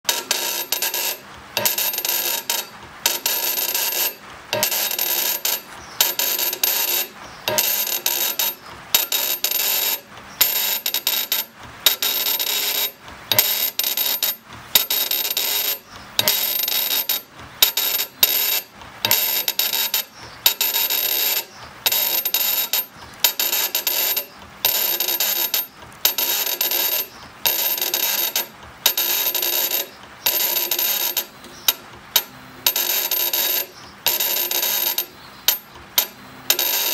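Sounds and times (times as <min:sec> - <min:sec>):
thin high whine: 0:00.1 - 0:36.9.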